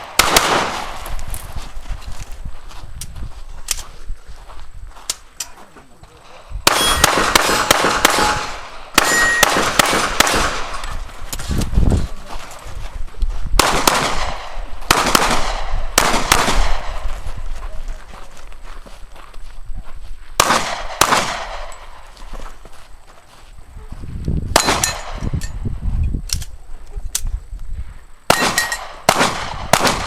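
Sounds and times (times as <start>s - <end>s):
pistol shots: 0.0s - 1.2s, 6.6s - 10.9s, 13.6s - 17.0s, 20.4s - 22.0s, 24.5s - 25.3s, 28.3s - 30.0s.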